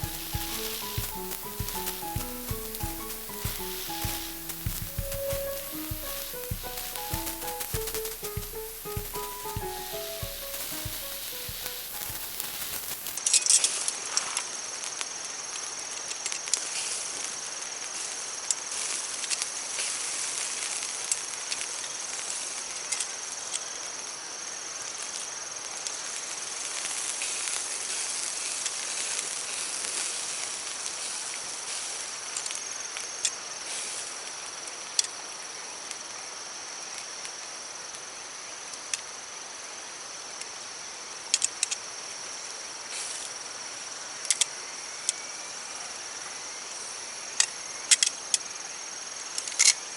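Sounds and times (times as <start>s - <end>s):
meat sizzling with pops: 0.0s - 13.2s, 14.8s - 22.4s, 25.7s - 33.0s
high-pitched insect trill: 0.0s - 13.5s.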